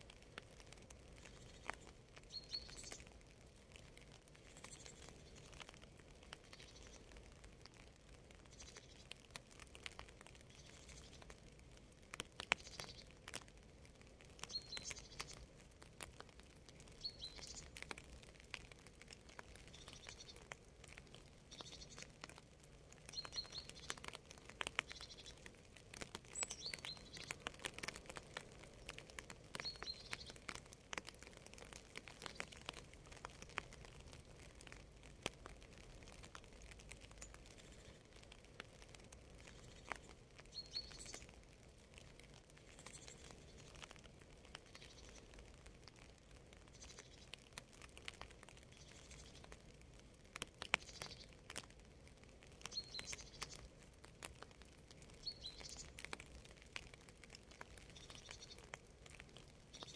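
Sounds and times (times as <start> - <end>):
rain dripping and pattering: 0.0 - 59.9
bird chirping: 1.2 - 3.0, 14.4 - 15.4, 16.9 - 17.7, 21.5 - 22.0, 23.1 - 24.0, 24.8 - 25.4, 26.3 - 27.4, 29.6 - 30.4, 39.4 - 41.4, 44.7 - 45.2, 52.7 - 53.6, 55.2 - 56.0, 57.9 - 58.6.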